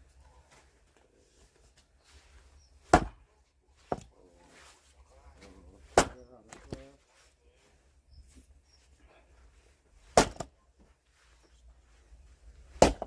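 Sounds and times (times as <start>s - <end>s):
axe chopping wood: 2.8s - 3.3s, 5.8s - 6.8s, 10.0s - 10.5s, 12.7s - 13.0s.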